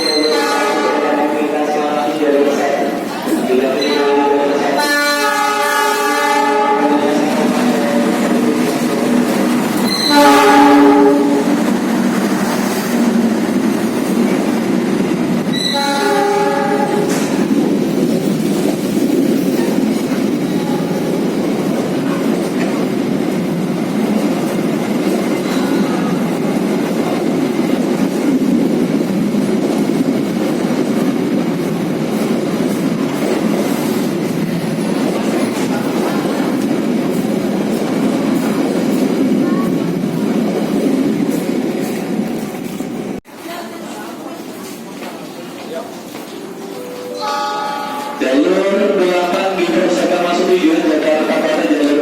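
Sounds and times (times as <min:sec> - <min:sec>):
train horn: 0:00.0 - 0:01.4, 0:03.7 - 0:08.2, 0:09.8 - 0:11.6, 0:15.5 - 0:17.3
train wheels rumbling on rail: 0:00.0 - 0:52.0.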